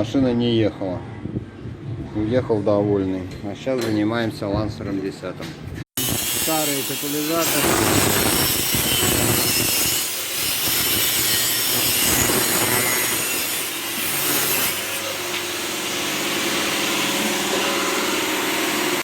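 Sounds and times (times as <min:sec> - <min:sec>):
cutting tool cutting steel pipe: 0:06.0 - 0:19.0.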